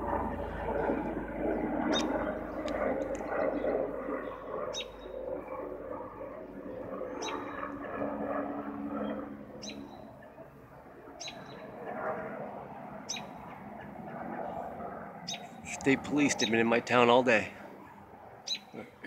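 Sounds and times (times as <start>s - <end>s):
small bird chirping: 1.9s - 2.6s, 3.2s - 5.2s, 7.2s - 7.6s, 9.6s - 10.1s, 11.2s - 11.7s, 13.1s - 13.5s, 15.3s - 15.6s, 16.3s - 16.6s, 18.4s - 18.8s.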